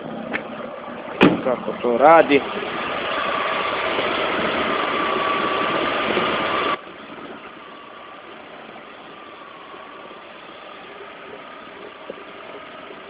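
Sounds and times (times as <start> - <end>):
car engine idling with whine: 0.0 - 13.0.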